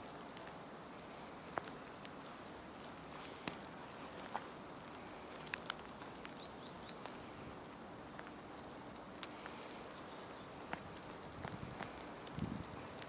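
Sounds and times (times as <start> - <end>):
faint outdoor hiss: 0.0 - 13.0
small bird chirping: 0.2 - 0.7, 3.8 - 4.5, 6.2 - 7.1, 9.5 - 10.6.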